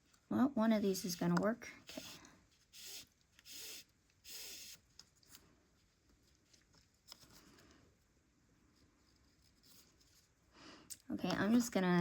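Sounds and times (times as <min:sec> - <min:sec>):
yarn rubbing against yarn: 0:00.8 - 0:04.8.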